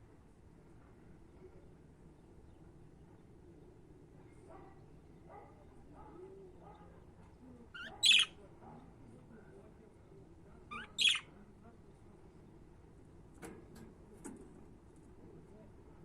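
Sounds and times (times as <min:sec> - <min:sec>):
budgerigars calling sharply: 0:07.8 - 0:08.3, 0:10.7 - 0:11.3
soft chirping: 0:07.8 - 0:08.3, 0:10.7 - 0:11.3.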